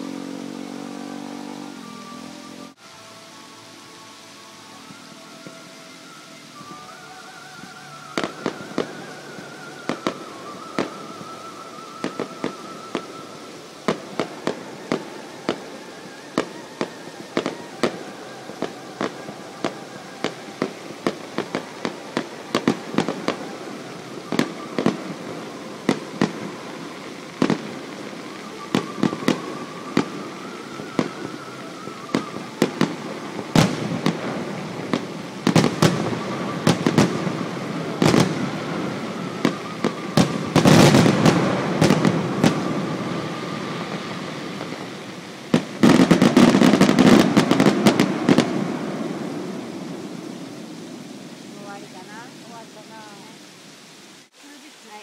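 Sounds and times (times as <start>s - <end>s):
fireworks bursting and banging: 0.0s - 55.0s.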